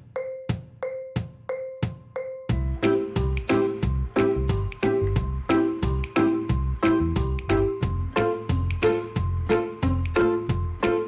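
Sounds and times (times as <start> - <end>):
background music with steady beat: 0.0 - 11.0
strong bass: 2.5 - 11.0.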